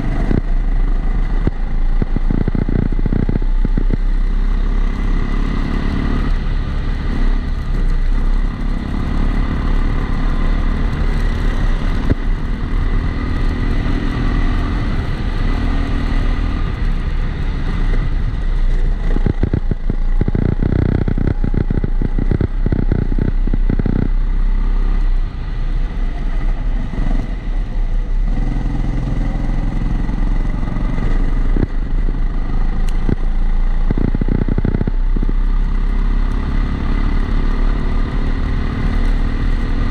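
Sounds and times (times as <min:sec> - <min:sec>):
clattering and juddering: 0:17.8 - 0:24.1
kart engine revving: 0:28.1 - 0:39.9.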